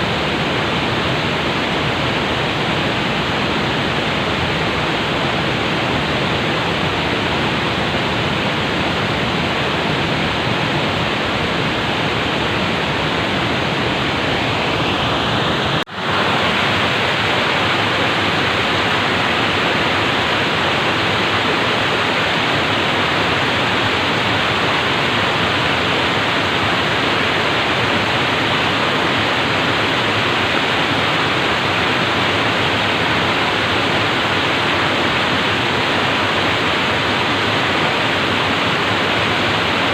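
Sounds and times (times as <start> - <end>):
water flowing steadily: 0.0 - 39.9.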